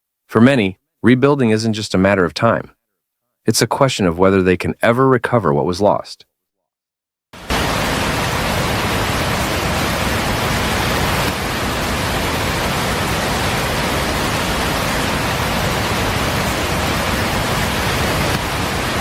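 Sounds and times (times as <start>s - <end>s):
loud steady rushing noise: 7.4s - 19.0s.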